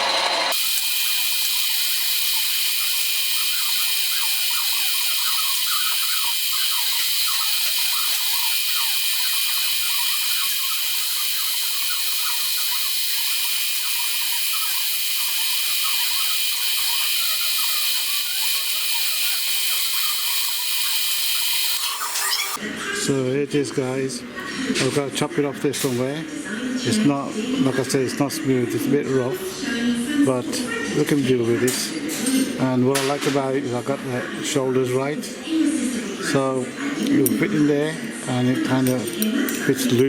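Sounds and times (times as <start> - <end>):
cutting tool chatter on metal: 0.0 - 22.6
lathe whining: 0.0 - 22.6.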